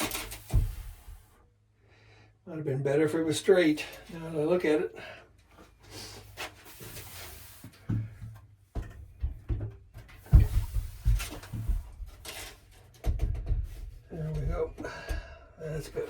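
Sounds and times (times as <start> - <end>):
water tank clunks and thumps: 0.0 - 1.2, 7.8 - 16.0
scraping of tank and piping: 0.0 - 1.3, 5.8 - 16.0.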